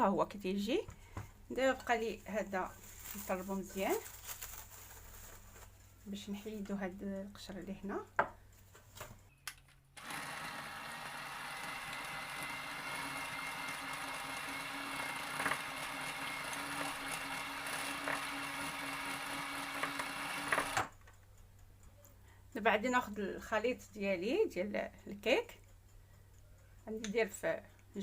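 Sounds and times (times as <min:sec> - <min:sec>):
electric hand mixer running: 0:10.0 - 0:20.9.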